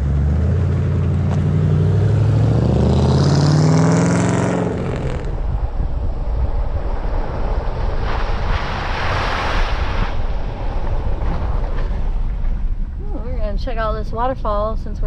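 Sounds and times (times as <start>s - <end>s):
car engine accelerating: 0.0s - 8.4s.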